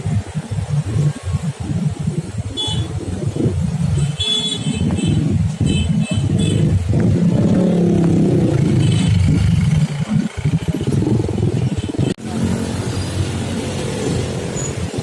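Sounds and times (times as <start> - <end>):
motorcycles and cars passing: 0.0 - 15.0
engines revving: 4.7 - 15.0.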